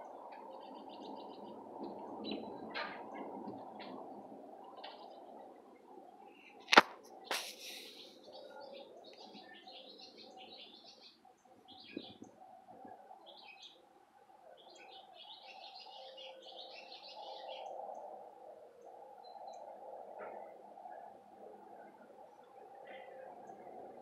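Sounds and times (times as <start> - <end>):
faint hum: 3.3 - 24.0
small birds chirping: 6.2 - 18.2.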